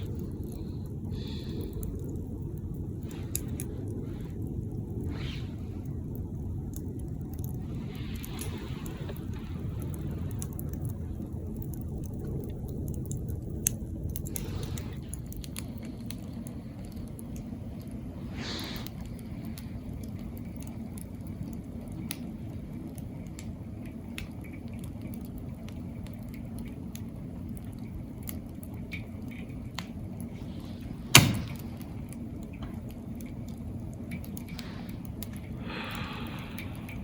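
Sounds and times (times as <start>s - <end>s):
campfire rumble: 0.0s - 37.0s
fire crackles and pops: 0.0s - 37.0s
loud sharp pop: 31.1s - 31.7s.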